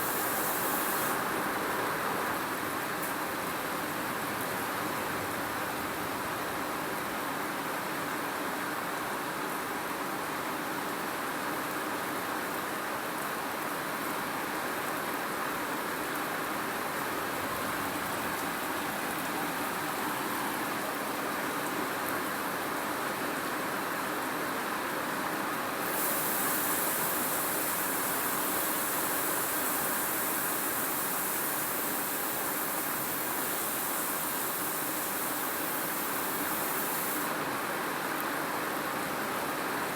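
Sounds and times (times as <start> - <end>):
rain hissing: 0.0 - 4.5, 16.0 - 21.5, 25.8 - 37.6.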